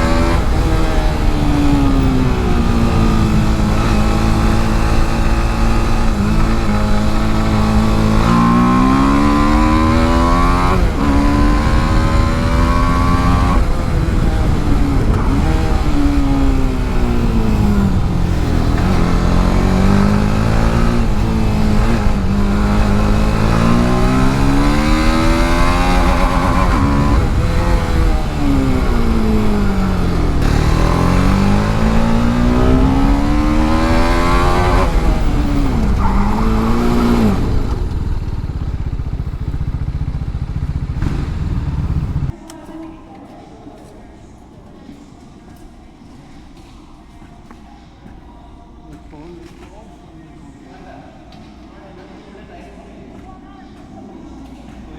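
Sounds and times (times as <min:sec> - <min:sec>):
motorcycle engine revving: 0:00.0 - 0:42.4.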